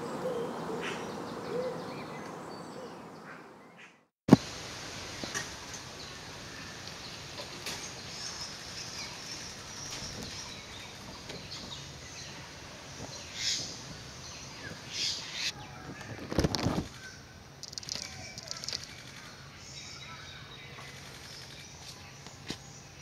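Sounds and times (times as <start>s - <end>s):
bird calls: 0.0s - 4.0s, 6.0s - 22.7s
woodland background noise: 0.0s - 23.0s
bird wingbeats: 17.6s - 19.3s.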